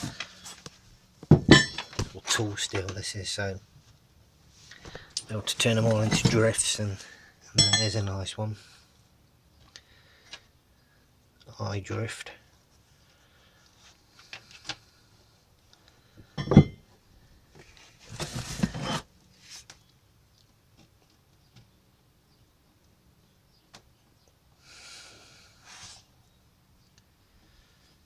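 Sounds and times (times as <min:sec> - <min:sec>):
metal tool clank: 0:01.3 - 0:02.1, 0:05.9 - 0:06.6, 0:07.6 - 0:08.0, 0:16.4 - 0:16.8
handling rustle: 0:04.6 - 0:07.0, 0:17.6 - 0:19.7.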